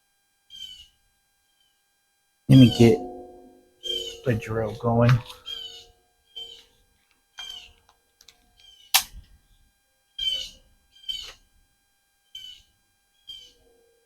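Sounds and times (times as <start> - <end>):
high-pitched animal calls: 0.5 - 0.9, 2.5 - 6.7, 7.4 - 7.8, 10.2 - 11.4, 12.3 - 13.6
sharp knock: 2.6 - 4.4.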